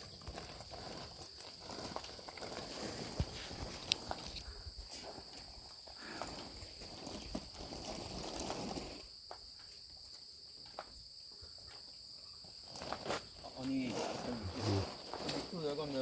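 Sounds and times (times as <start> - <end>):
footsteps scuffing on path: 0.0 - 9.7
insects chirring: 0.0 - 16.0.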